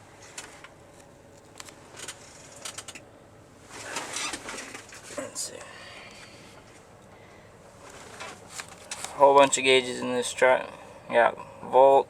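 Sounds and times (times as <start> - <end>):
light clicks and rattles: 0.2 - 3.1
short rustling: 3.6 - 5.3, 7.7 - 9.2.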